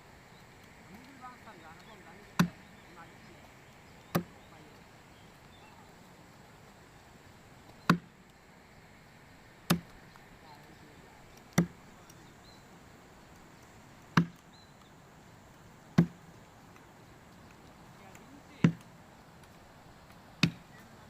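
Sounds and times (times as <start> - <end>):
hand tool chopping blows: 16.0 - 16.2.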